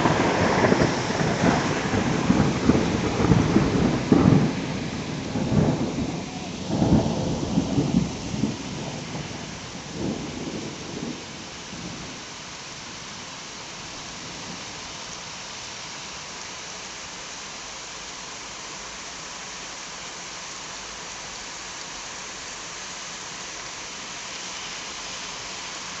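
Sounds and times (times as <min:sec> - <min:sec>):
thunder rumbling: 0:00.0 - 0:12.3
heavy rain: 0:00.0 - 0:26.0.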